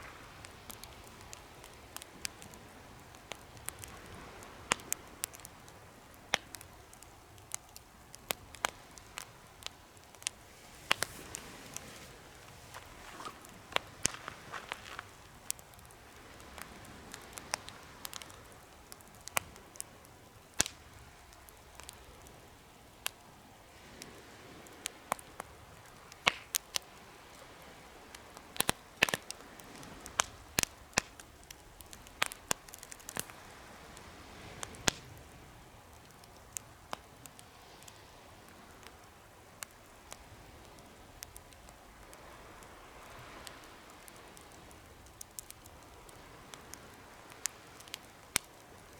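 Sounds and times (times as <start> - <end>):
campfire crackling and popping: 0.0 - 48.9
soft steady hiss: 0.0 - 48.9.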